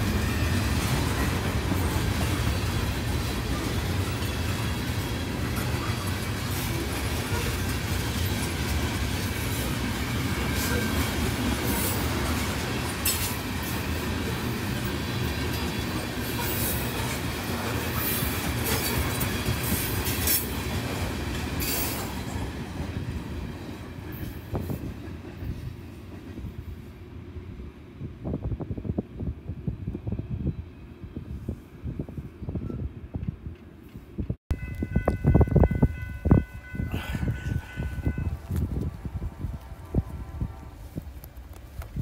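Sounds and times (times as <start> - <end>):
train wheels rumbling on rails: 0.0 - 27.1.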